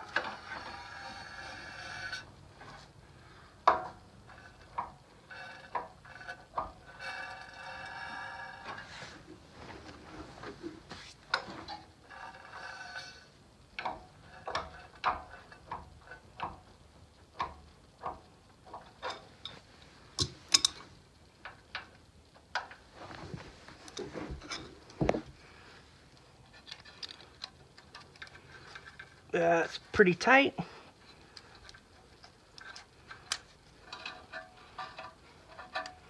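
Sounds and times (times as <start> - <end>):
hand tools clicking on metal: 20.2 - 20.9.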